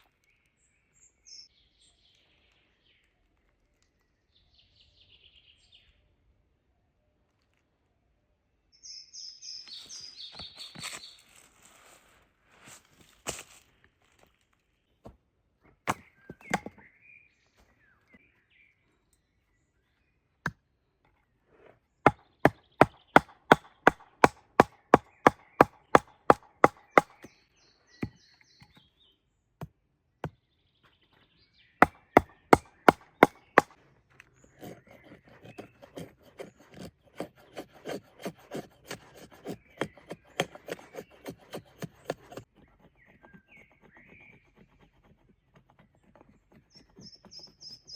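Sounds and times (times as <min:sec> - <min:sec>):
wood chopping blows: 0:15.9 - 0:16.8, 0:22.1 - 0:27.3, 0:31.8 - 0:33.8.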